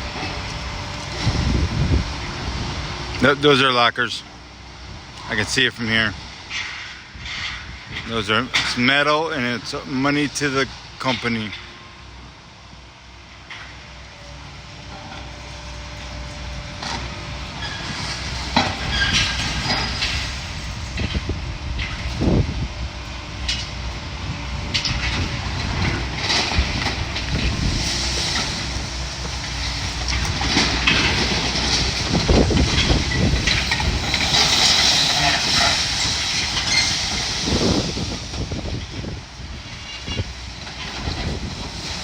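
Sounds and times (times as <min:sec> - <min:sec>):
demolition machinery engine rumble: 0:00.0 - 0:42.0
metal and rubble crashing: 0:16.8 - 0:22.5, 0:24.6 - 0:42.0.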